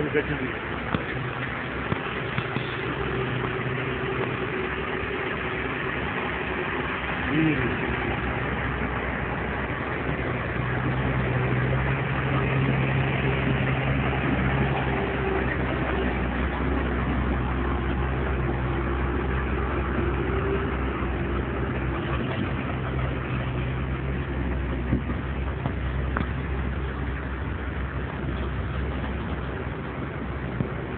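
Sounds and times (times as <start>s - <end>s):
constant rushing noise: 0.0s - 30.9s
steady engine hum: 0.0s - 30.9s.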